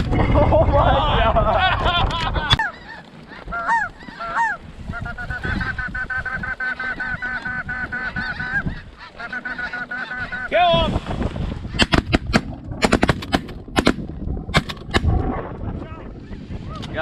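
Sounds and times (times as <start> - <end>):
geese honking: 2.6 - 10.7
sharp crack: 11.8 - 15.3.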